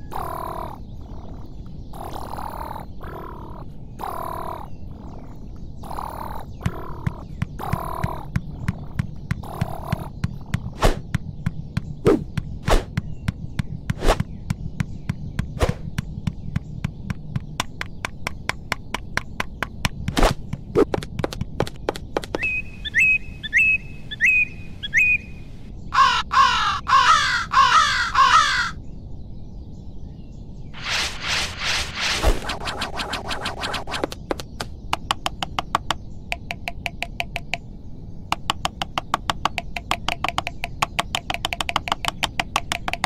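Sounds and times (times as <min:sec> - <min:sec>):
high repeated bird calls: 0:00.0 - 0:28.8, 0:30.2 - 0:43.0
crow cawing: 0:02.0 - 0:10.1, 0:25.9 - 0:28.8
bird pecking at wood: 0:06.6 - 0:22.4, 0:34.4 - 0:37.6, 0:38.3 - 0:43.0.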